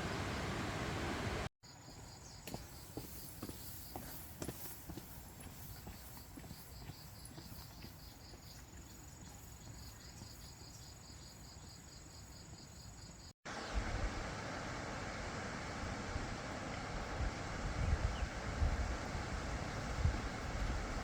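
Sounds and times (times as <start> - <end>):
insects chirping: 1.6 - 13.3
wind-like noise: 13.5 - 21.0.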